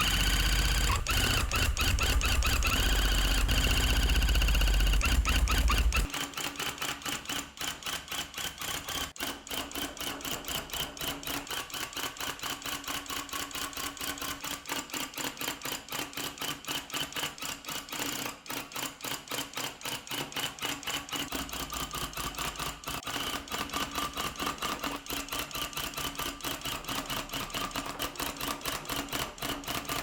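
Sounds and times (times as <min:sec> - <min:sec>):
tufting gun mechanical chatter: 0:00.0 - 0:06.1.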